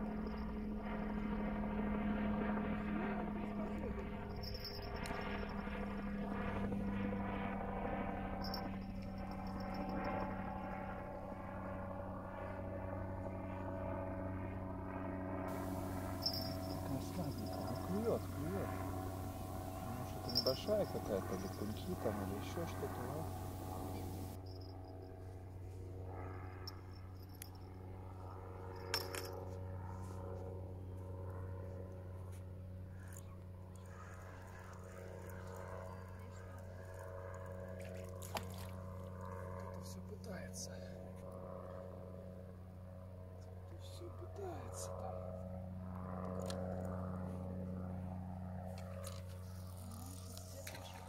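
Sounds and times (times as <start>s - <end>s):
engine droning: 0.0s - 24.8s
steady low hum: 0.0s - 51.0s
light metallic clinks: 0.1s - 1.0s, 4.2s - 5.8s, 8.4s - 10.4s, 15.5s - 25.0s, 26.5s - 27.8s, 28.7s - 29.5s.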